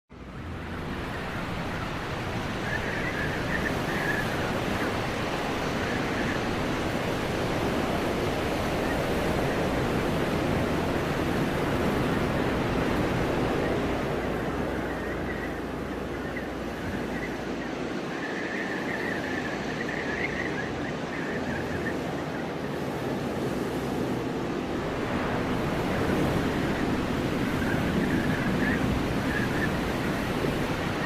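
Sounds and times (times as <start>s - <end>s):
rushing wind of a snowstorm: 0.1s - 31.0s.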